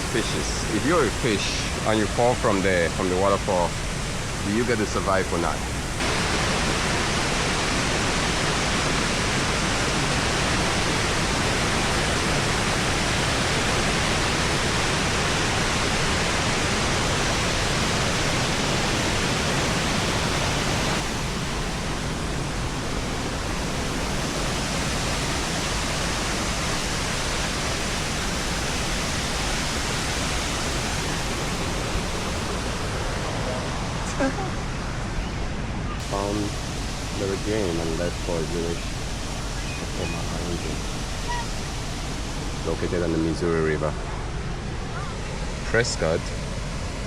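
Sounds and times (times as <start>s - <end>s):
water rushing over rock: 4.5s - 33.8s.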